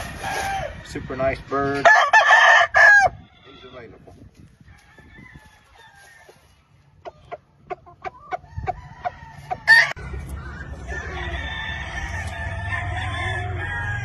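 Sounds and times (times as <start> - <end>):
roosters crowing: 0.0 - 1.0, 1.7 - 3.9, 4.6 - 6.5, 8.1 - 14.0.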